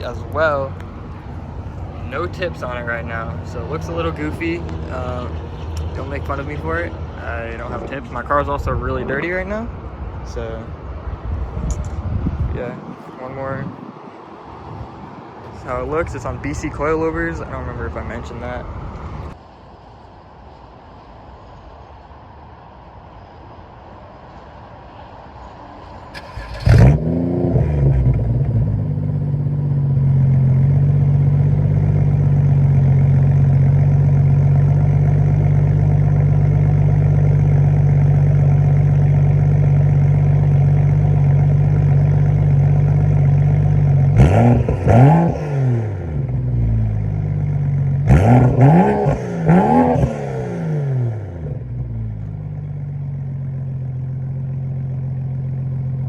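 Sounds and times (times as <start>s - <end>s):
car engine revving and idling: 0.0s - 10.7s, 26.2s - 56.0s.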